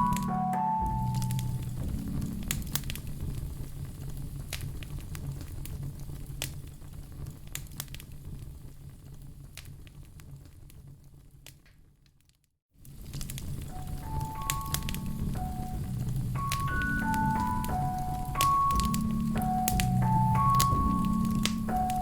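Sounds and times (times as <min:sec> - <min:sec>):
low soft steady tone: 0:00.0 - 0:03.7
wood fire crackling: 0:00.0 - 0:22.0.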